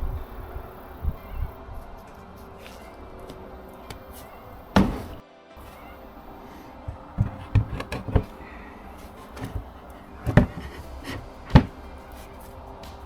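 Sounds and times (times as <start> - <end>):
sharp knocks and bumps: 3.9 - 5.2, 6.9 - 8.4, 9.1 - 11.8.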